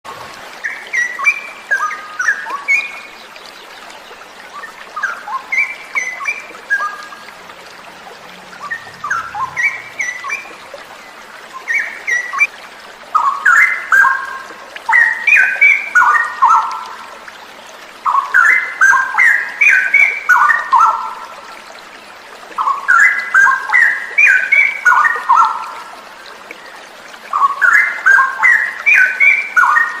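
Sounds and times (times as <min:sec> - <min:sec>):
falling water rushing: 0:00.0 - 0:30.0
bird singing: 0:08.5 - 0:10.6.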